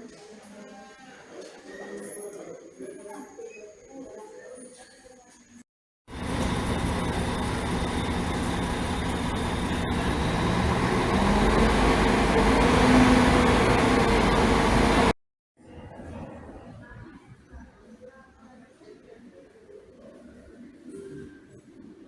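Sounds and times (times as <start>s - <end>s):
bus engine running: 6.1s - 15.2s.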